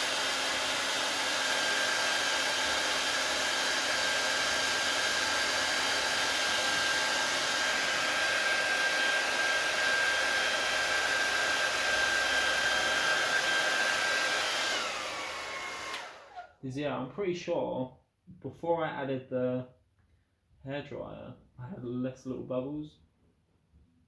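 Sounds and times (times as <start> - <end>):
hair dryer running: 0.0 - 16.6.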